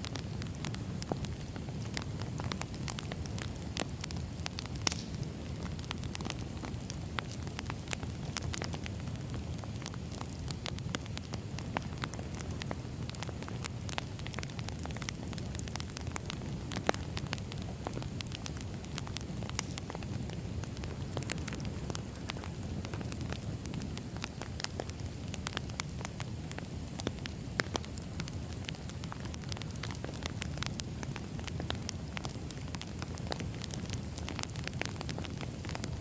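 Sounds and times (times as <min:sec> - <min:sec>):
firewood crackling and popping: 0:00.0 - 0:36.0.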